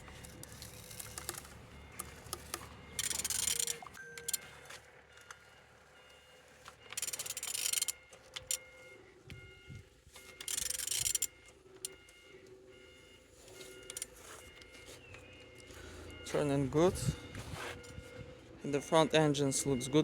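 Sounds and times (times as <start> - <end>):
engine turned over by hand: 0.0 - 5.4
faint steady beeping tones: 0.0 - 20.0.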